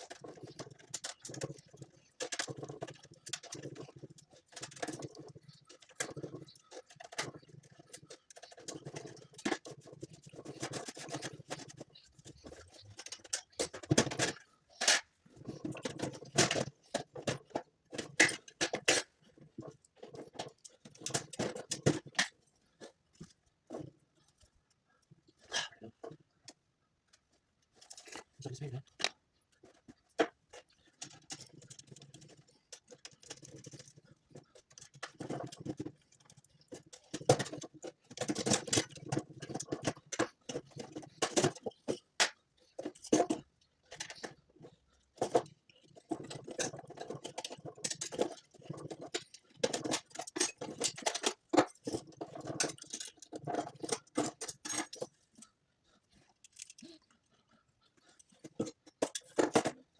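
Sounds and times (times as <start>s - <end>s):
hard parts clicking and rattling: 0.0s - 59.9s.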